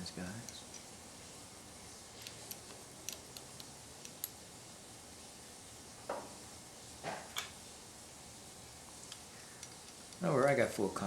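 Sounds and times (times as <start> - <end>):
small metal parts clicking: 2.2 - 4.4, 9.1 - 10.2.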